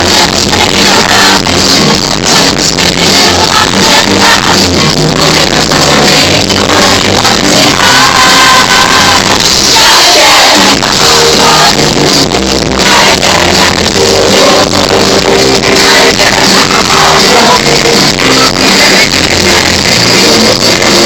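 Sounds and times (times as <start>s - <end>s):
live band music with singing: 0.0s - 21.0s.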